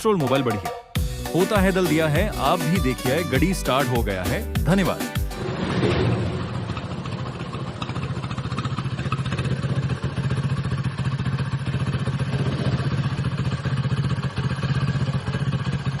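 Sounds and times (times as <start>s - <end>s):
motorcycle engine idling: 6.0s - 16.0s.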